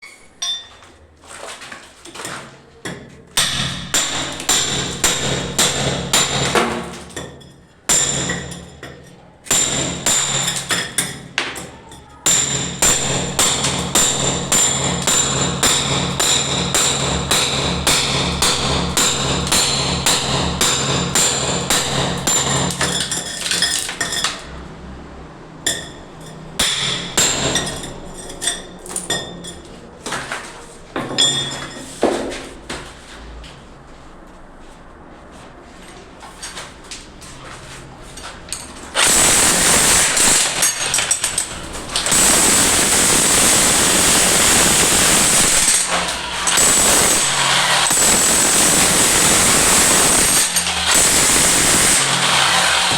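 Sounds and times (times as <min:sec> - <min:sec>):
hammer striking metal: 0:03.4 - 0:11.7, 0:12.3 - 0:23.5, 0:26.6 - 0:29.4.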